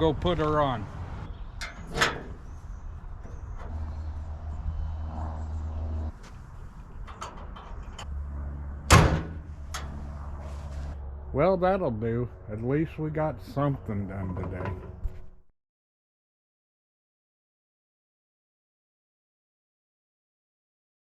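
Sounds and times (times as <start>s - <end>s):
low hum: 0.8s - 15.5s.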